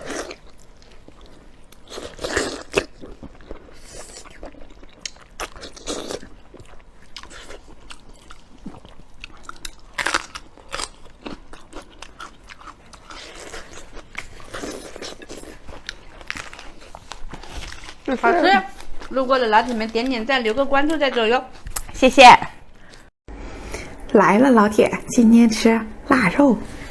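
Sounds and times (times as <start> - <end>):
person chewing crunchy food: 0.0 - 20.0.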